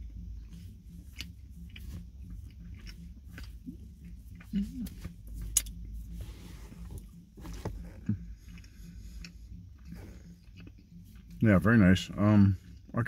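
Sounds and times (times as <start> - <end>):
chewing granola bar: 0.0 - 6.0, 7.7 - 11.4
car interior rumble: 0.0 - 13.0.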